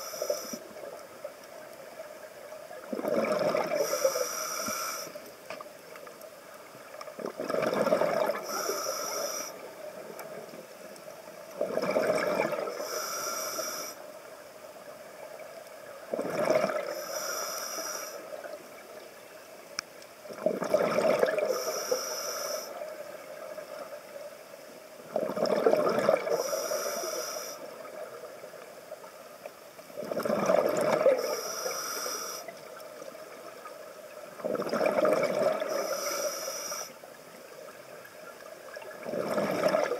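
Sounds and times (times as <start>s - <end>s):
exhaled bubbles gushing: 2.8s - 3.9s, 7.2s - 8.5s, 11.6s - 12.7s, 16.1s - 16.9s, 20.3s - 21.6s, 25.1s - 26.4s, 30.0s - 31.4s, 34.3s - 35.8s, 38.7s - 39.9s
regulator breath hissing: 3.8s - 5.3s, 8.4s - 9.6s, 12.7s - 14.0s, 16.9s - 18.3s, 21.5s - 22.8s, 26.3s - 27.7s, 31.2s - 32.6s, 35.7s - 37.0s.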